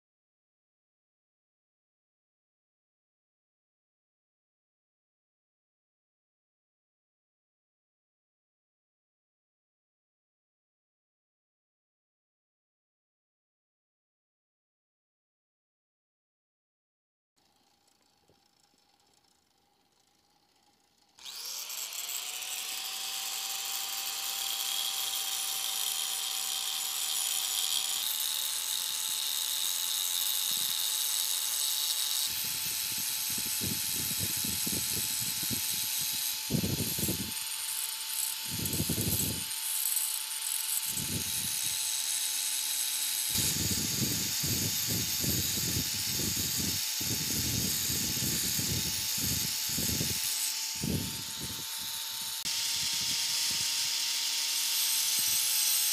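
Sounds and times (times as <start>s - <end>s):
grinder disc grinding steel: 17.4s - 55.9s
angle grinder motor whine: 17.5s - 55.9s.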